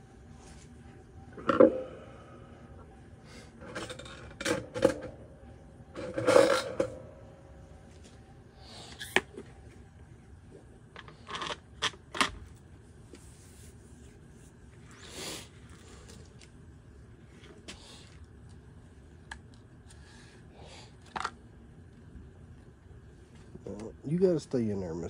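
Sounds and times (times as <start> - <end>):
plastic parts clicking and scraping: 10.9 - 12.4.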